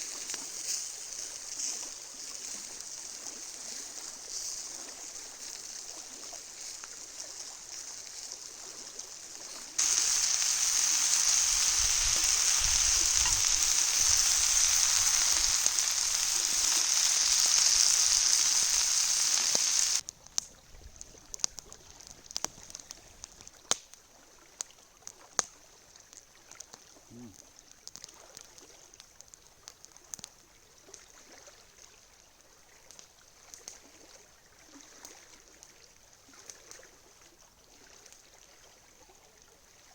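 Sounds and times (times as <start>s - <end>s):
food sizzling in a pan: 5.3s - 20.0s
campfire crackles and pops: 5.4s - 24.0s, 27.6s - 30.4s.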